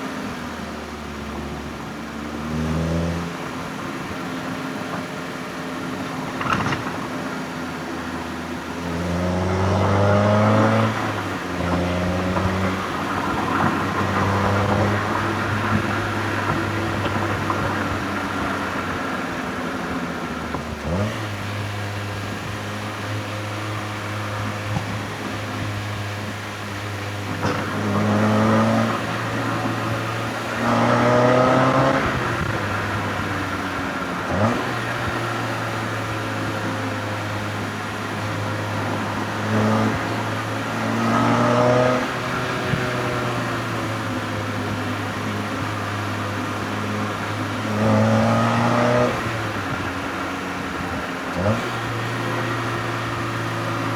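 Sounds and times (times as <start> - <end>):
car engine revving: 27.0 - 53.9.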